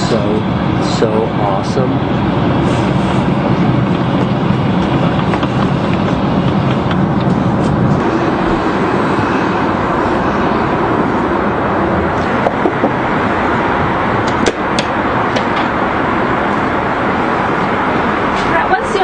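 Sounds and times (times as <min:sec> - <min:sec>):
airliner cabin roar: 0:00.0 - 0:19.0.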